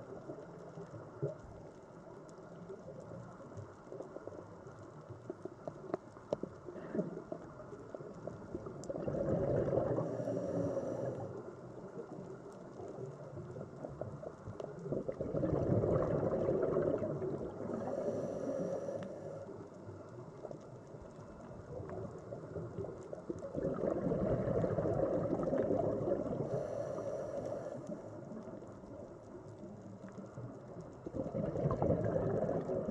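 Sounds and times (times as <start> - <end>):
sea water swelling: 8.0 - 13.9, 14.8 - 20.6, 21.8 - 29.0, 31.0 - 32.9.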